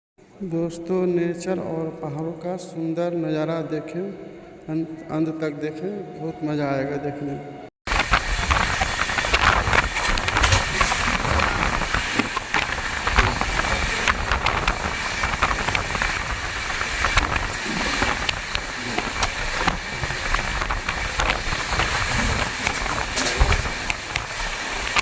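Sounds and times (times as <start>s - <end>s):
train rumbling and rattling: 7.9s - 25.0s.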